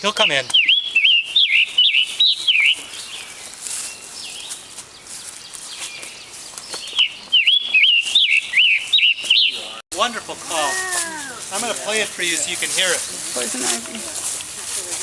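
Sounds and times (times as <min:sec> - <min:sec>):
bird singing hoarse phrases: 0:00.0 - 0:03.3, 0:07.0 - 0:11.5.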